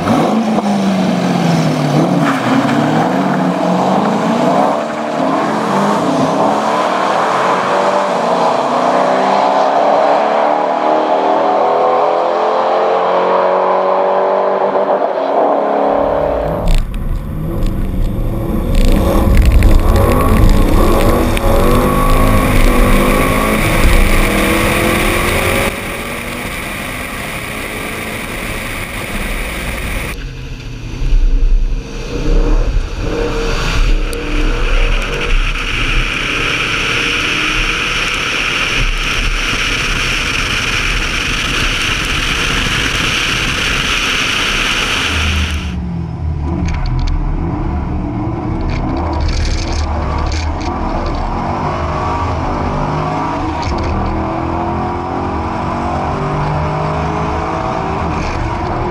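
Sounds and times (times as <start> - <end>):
car engine accelerating: 0.0 - 58.9
heavy low rumble: 15.8 - 52.8.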